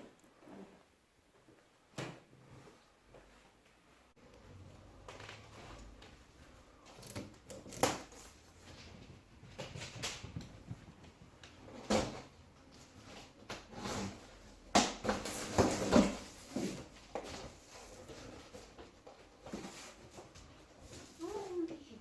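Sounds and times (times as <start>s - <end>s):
packaging knocks and scrapes: 13.0s - 21.2s.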